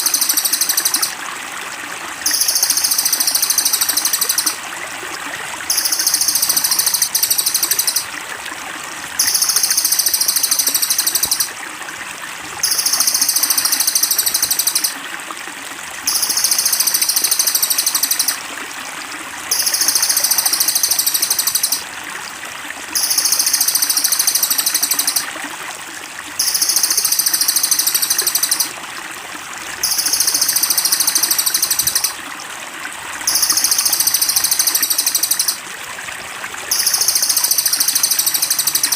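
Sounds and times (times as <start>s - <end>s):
trickling water: 0.0s - 38.9s
shrill high-pitched birdsong: 5.7s - 8.1s, 29.8s - 32.2s, 33.3s - 35.6s.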